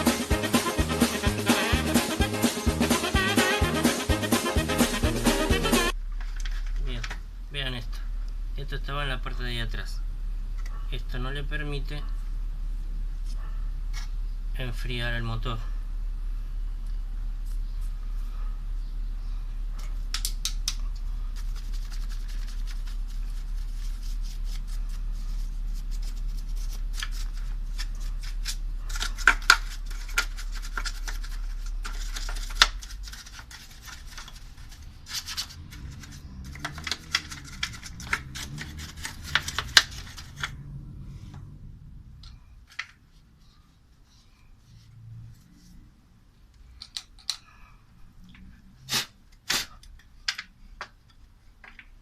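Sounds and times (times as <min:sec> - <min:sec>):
low hum: 0:00.0 - 0:46.6
tool scraping and clicking on fan parts: 0:26.5 - 0:40.6.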